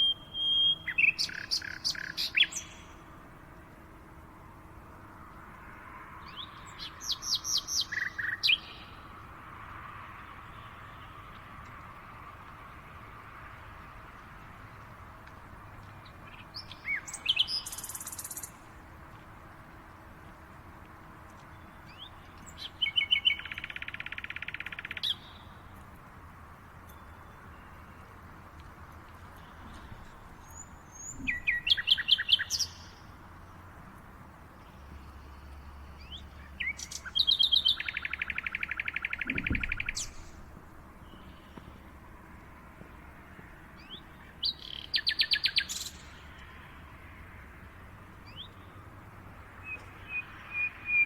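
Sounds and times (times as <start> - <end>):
songbird trilling: 0.0 - 3.0, 6.4 - 9.0, 16.3 - 18.6, 21.9 - 25.5, 29.5 - 33.0, 36.0 - 40.4, 43.8 - 46.1, 49.6 - 51.0
songbird singing: 0.0 - 51.0.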